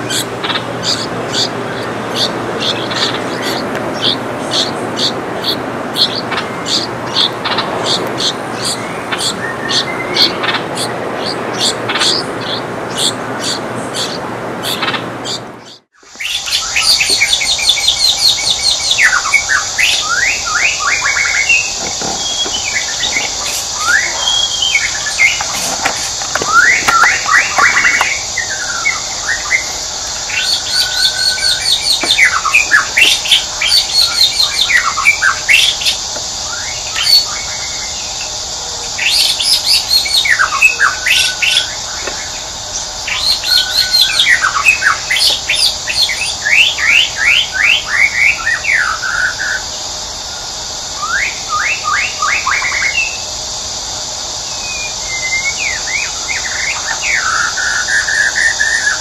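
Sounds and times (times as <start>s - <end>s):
birds chirping and trilling: 0.0s - 59.0s
steady high hiss: 15.9s - 59.0s.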